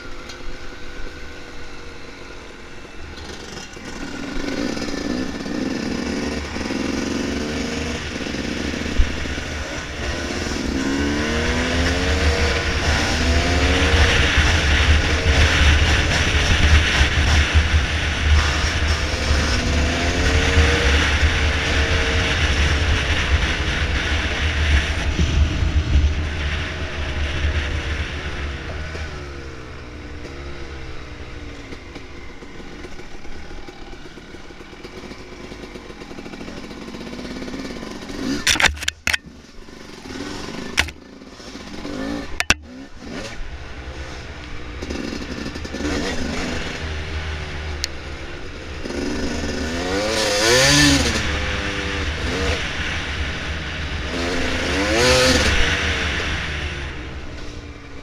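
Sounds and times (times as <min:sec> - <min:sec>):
dirt bike engine revving: 0:03.1 - 0:29.4, 0:32.6 - 0:57.5
steady low rumble: 0:23.0 - 0:30.2.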